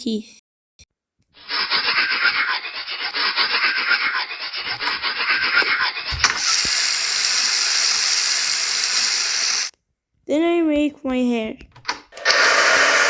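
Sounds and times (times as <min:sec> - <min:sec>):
toothbrush scrubbing teeth: 0:01.4 - 0:09.7
steady rushing hiss: 0:06.4 - 0:09.7.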